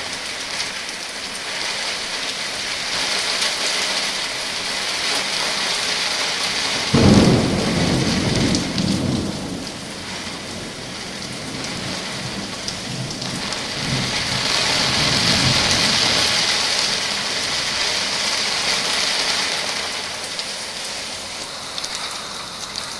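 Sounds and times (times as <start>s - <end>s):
heavy rain: 0.0s - 22.9s
thunderclap rumbling: 6.8s - 19.9s
faint roll of thunder: 6.9s - 16.3s.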